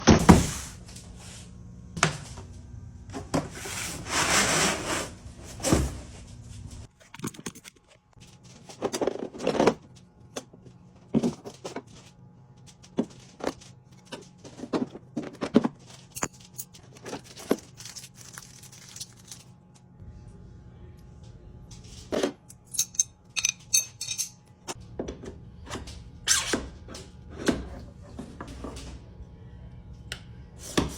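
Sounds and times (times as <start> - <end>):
low hum: 16.2 - 26.2
packaging rustling and tearing: 16.9 - 19.5.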